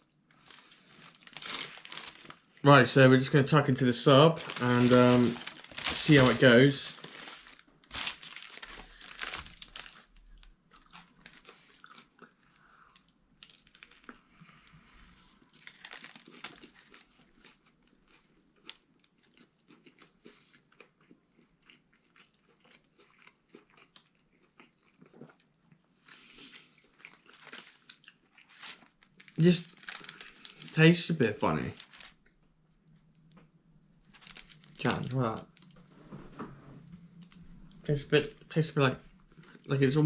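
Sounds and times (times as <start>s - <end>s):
person chewing sandwich: 7.0s - 30.8s, 31.8s - 35.8s.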